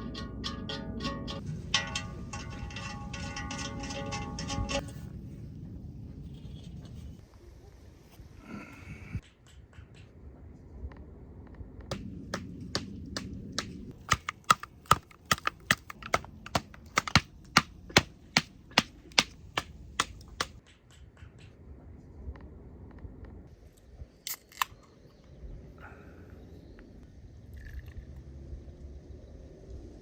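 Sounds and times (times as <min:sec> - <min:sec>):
sharp clicks: 0:11.9 - 0:20.6.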